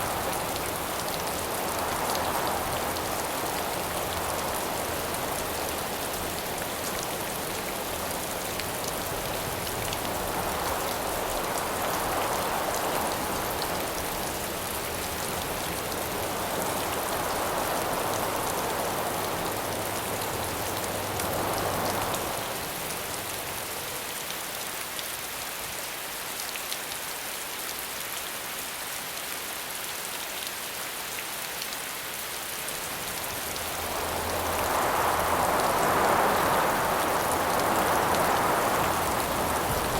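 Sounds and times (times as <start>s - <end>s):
wind gusts: 0.0s - 23.9s, 32.2s - 39.9s
steady rain pattering: 0.0s - 39.9s.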